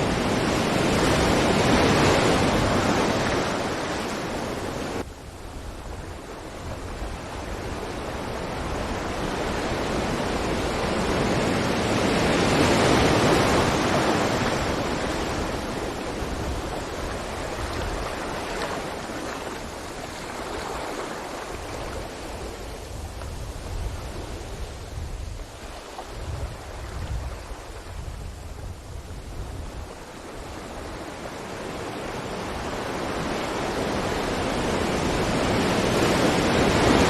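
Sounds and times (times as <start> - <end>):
ocean waves breaking on beach: 0.0 - 37.0.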